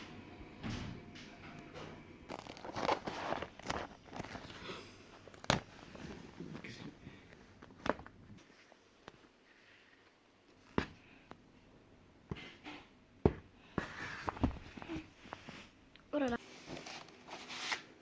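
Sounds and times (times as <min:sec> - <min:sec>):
packaging rustling: 0:02.3 - 0:08.2.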